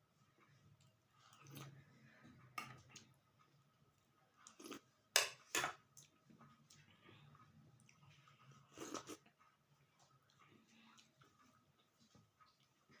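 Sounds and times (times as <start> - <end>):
person chewing: 4.4 - 4.9, 5.9 - 13.0.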